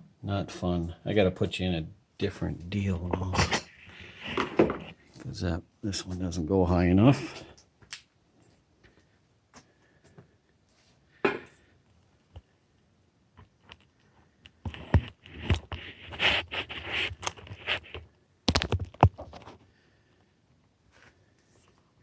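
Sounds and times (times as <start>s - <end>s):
scraping and rustling: 3.0s - 5.4s, 13.5s - 19.6s.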